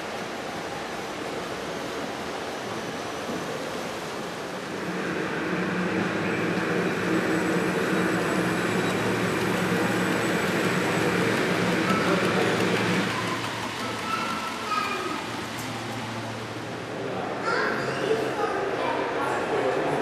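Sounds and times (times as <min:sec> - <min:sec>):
wheels on rails: 0:00.9 - 0:16.9
model train motor hum: 0:04.6 - 0:16.7.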